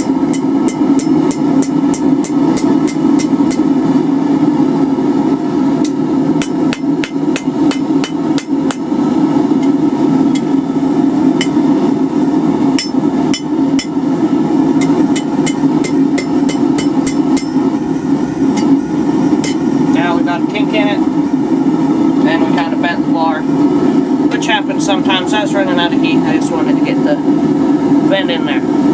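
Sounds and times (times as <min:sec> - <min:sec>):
hammer ringing on hot steel: 0:00.0 - 0:03.8, 0:05.8 - 0:08.9, 0:09.6 - 0:10.6, 0:11.4 - 0:11.6, 0:12.7 - 0:14.0, 0:14.8 - 0:17.7, 0:18.5 - 0:19.7
steady low rumble: 0:00.0 - 0:28.9.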